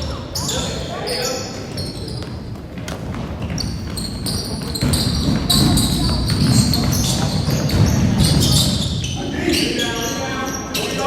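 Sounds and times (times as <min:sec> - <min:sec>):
voices in a gym: 0:00.0 - 0:11.0
basketball bouncing on wooden court: 0:01.7 - 0:09.1.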